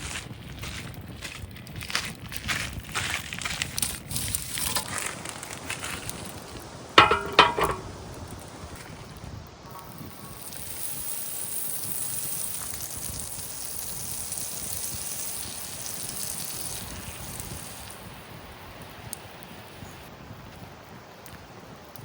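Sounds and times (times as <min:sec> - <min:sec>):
batter sizzling in a pan: 0:09.8 - 0:22.0.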